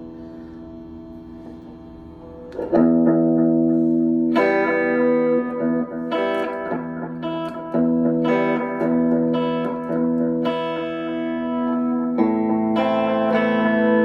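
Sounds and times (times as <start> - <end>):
guitar chords: 0.0 - 14.0.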